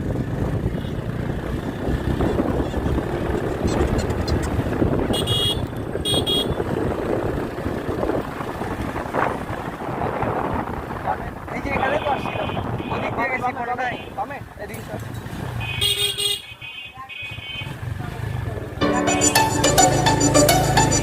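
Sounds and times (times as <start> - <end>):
motorcycle engine rumbling: 0.0 - 21.0
wind noise on microphone: 1.6 - 14.2
horn beeps: 2.2 - 6.6, 18.8 - 21.0.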